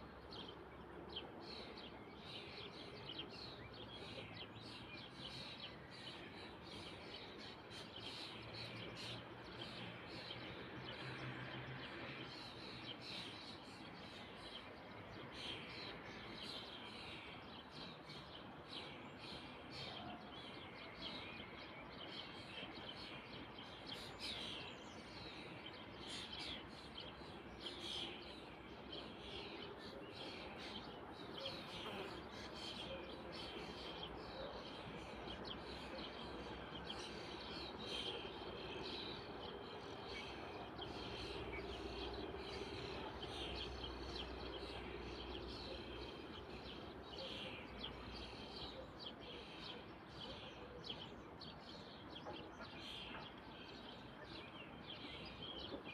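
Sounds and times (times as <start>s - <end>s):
faint outdoor background: 0.0s - 55.9s
small birds chirping: 22.9s - 55.9s.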